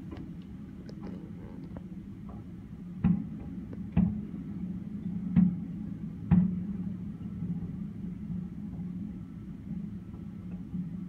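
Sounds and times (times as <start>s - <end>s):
low rumble: 0.0s - 7.8s.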